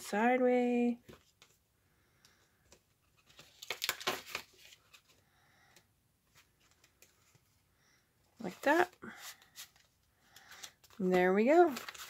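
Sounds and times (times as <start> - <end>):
paper rustling and scraping: 8.4 - 12.0.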